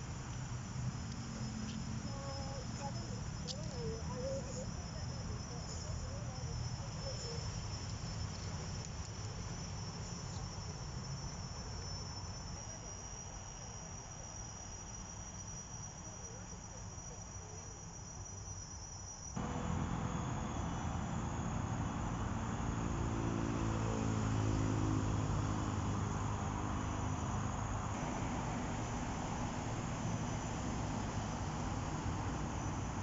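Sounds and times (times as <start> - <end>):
steady traffic noise: 0.0 - 12.8, 19.4 - 33.0
high insect trill: 0.0 - 33.0
vehicle passing: 19.4 - 33.0.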